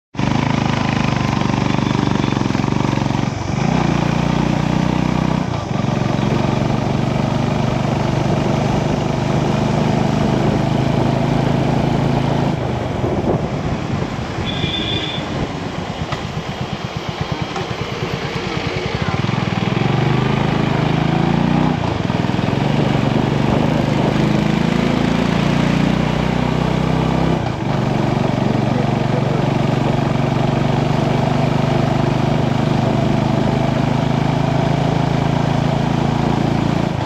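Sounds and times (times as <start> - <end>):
motorcycle engine idling: 0.2 - 3.6, 13.8 - 20.4
short high-pitched beep: 14.4 - 15.3.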